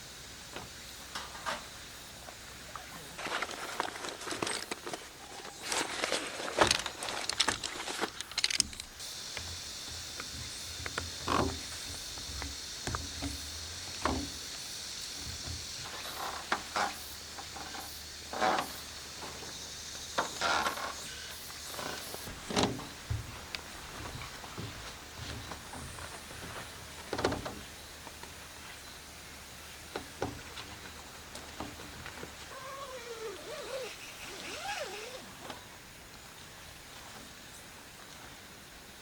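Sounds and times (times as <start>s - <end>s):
cicadas droning: 0.0s - 39.0s
camping gear being handled: 3.1s - 19.6s, 20.2s - 29.0s, 30.0s - 35.7s.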